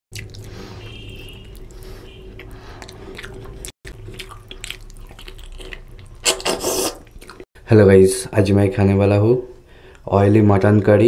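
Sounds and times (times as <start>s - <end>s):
wet chewing and biting: 0.1s - 7.5s.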